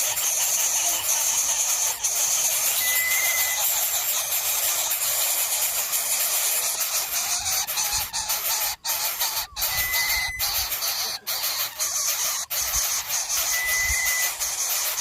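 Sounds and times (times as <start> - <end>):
bird chicks clucking begging calls: 0.0 - 15.0
high steady tone: 2.6 - 3.7.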